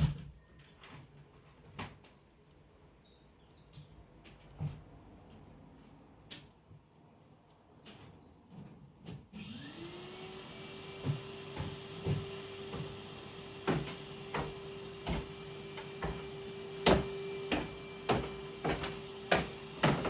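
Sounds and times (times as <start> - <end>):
vacuum cleaner motor whine: 9.4 - 20.0.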